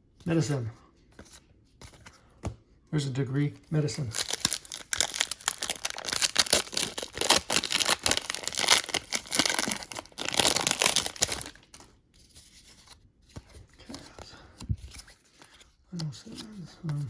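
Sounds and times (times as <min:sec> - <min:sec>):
wrapper crinkling: 0:04.0 - 0:11.8.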